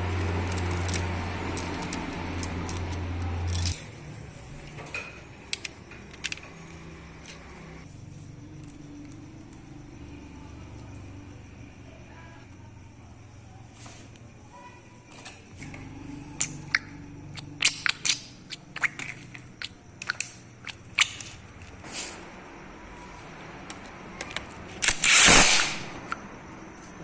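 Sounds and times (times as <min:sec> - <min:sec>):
loud hissing burst: 0:24.8 - 0:26.0.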